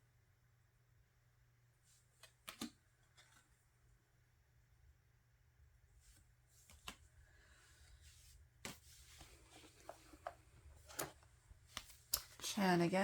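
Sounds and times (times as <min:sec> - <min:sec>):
paper rustling: 0:02.2 - 0:03.6.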